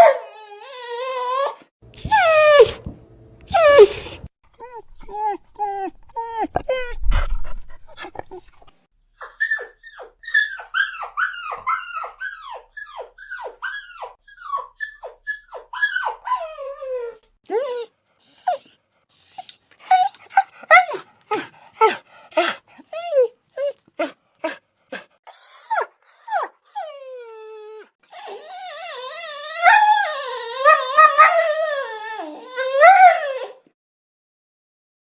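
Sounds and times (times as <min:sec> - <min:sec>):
dog whining: 0:00.0 - 0:24.6, 0:25.3 - 0:33.7.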